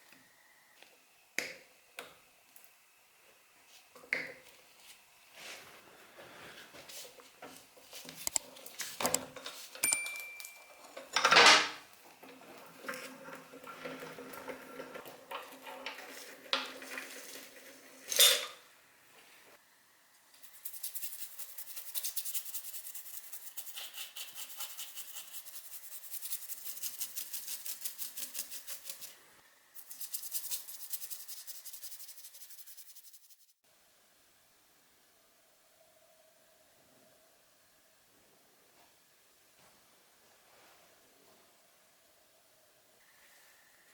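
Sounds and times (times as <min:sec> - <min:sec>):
metal tools clinking: 0:09.3 - 0:11.8, 0:18.0 - 0:18.6.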